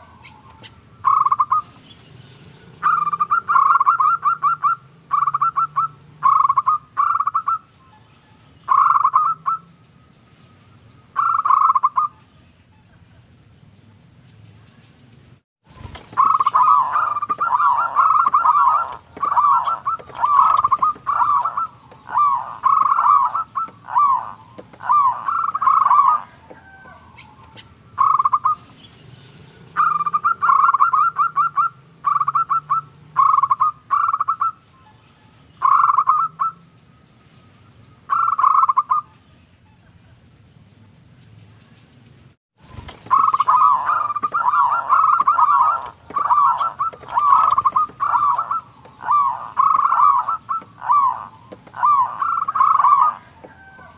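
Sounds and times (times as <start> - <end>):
dove cooing: 2.6 - 8.1, 8.7 - 9.7, 11.2 - 12.2, 15.8 - 28.6, 29.8 - 34.6, 35.6 - 36.6, 42.8 - 53.9.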